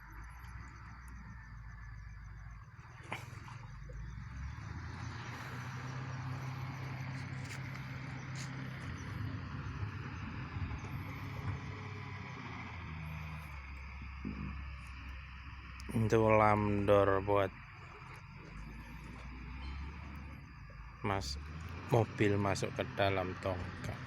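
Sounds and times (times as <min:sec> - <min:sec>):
engine running at low hum: 0:00.0 - 0:24.0.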